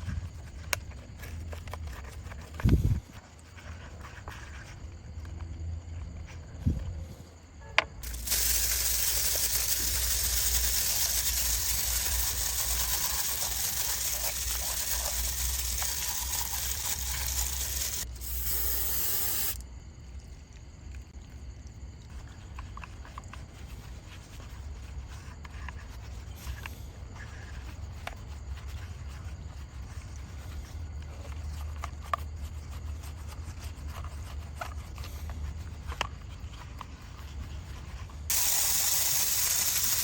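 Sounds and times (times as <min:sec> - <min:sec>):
spray hissing: 0:08.0 - 0:19.6, 0:38.3 - 0:40.0.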